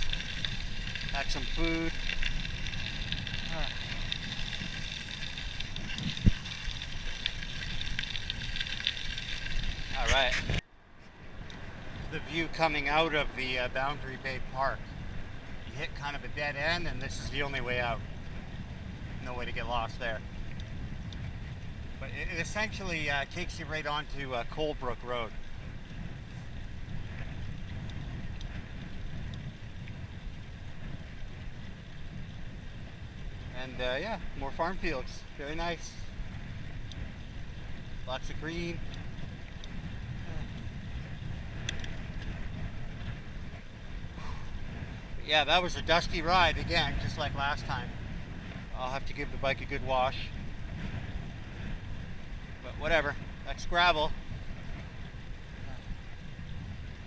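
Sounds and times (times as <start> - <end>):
bike tyres crunching on gravel: 0.0 - 10.6
wind rumbling on microphone: 0.0 - 57.0
faint ticks: 20.5 - 21.2, 27.5 - 30.0, 36.7 - 37.1, 38.8 - 39.8, 41.5 - 42.4.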